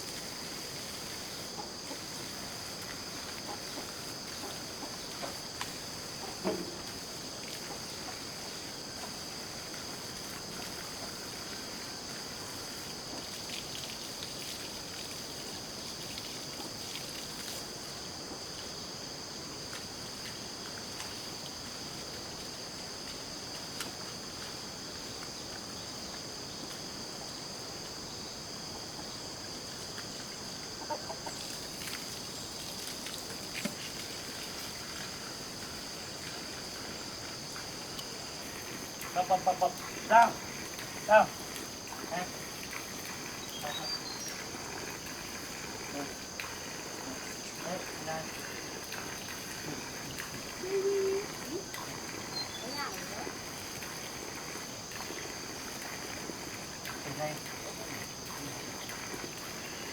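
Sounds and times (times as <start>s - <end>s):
chickens clucking: 30.8s - 31.4s.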